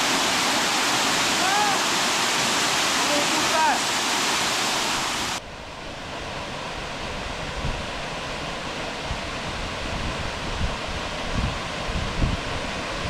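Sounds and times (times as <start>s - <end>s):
waterfall rushing: 0.0s - 5.4s
wind buffeting microphone: 9.0s - 13.0s.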